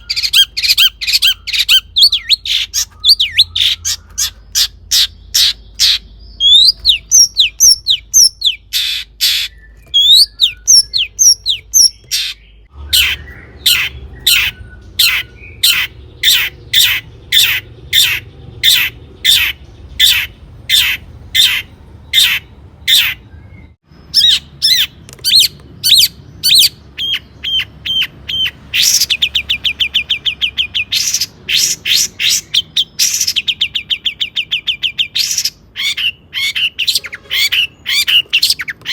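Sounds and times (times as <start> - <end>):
fast rattling bird trill: 0.0 - 23.2, 24.0 - 38.9
shrike harsh calls: 0.0 - 23.2
whistled slurred bird notes: 0.0 - 38.9.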